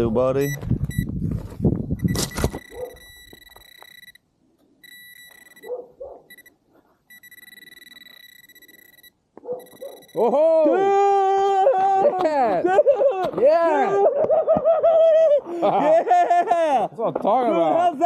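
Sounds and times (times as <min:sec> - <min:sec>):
metal detector beeping: 0:00.4 - 0:01.1, 0:01.9 - 0:10.4.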